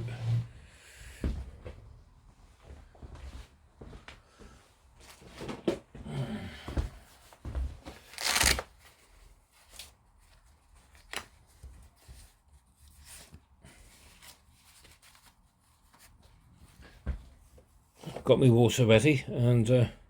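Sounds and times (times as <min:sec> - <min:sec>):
rustling: 0:07.4 - 0:18.1.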